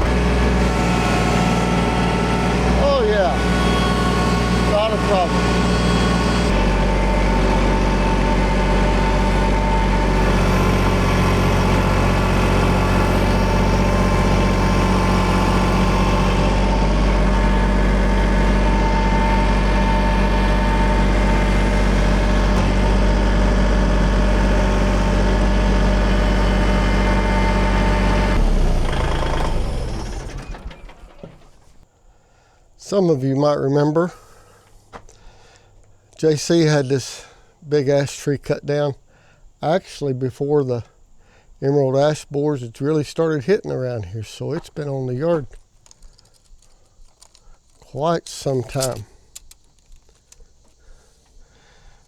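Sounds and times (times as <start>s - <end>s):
tractor engine running: 0.0s - 31.9s, 44.3s - 52.0s.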